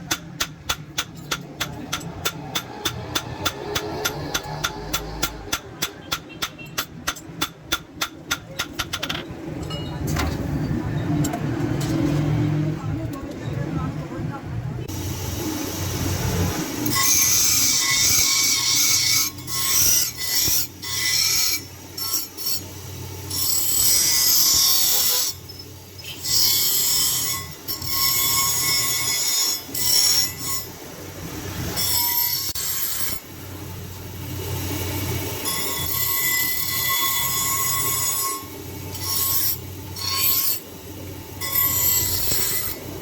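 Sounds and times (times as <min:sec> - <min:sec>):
abrasive tool rasping: 0:16.8 - 0:30.8, 0:35.4 - 0:40.7, 0:41.4 - 0:43.0.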